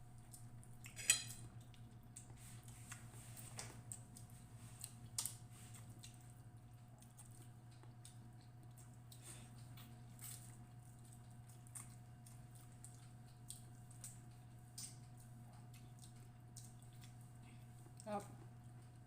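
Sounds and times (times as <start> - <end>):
steady low hum: 0.0 - 19.0
chewing and wet squishes: 0.1 - 19.0
utensil clinking on dish: 1.0 - 1.4.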